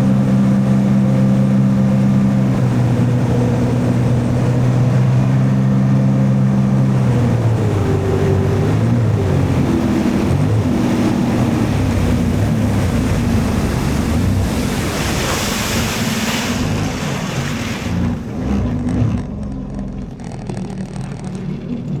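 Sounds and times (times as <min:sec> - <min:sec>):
jet ski engine running: 0:00.0 - 0:22.0
water spray: 0:14.4 - 0:18.0.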